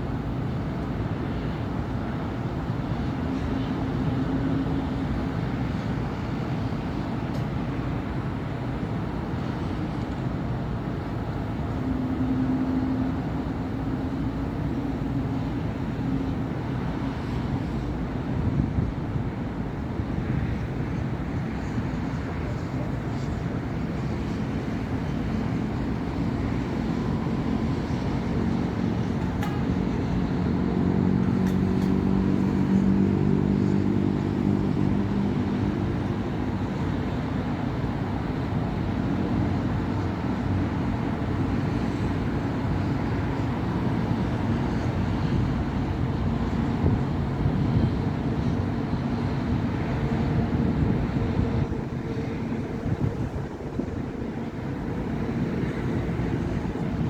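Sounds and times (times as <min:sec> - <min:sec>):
heavy engine drone: 0:00.0 - 0:57.0.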